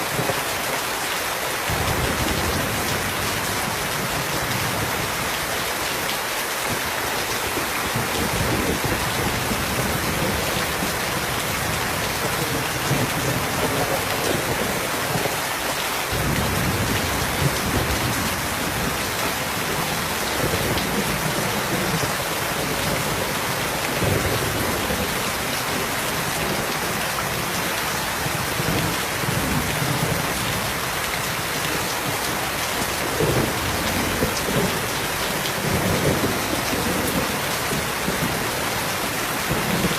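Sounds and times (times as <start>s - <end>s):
steady rain falling: 0.0s - 39.9s
rolling thunder: 16.1s - 27.0s.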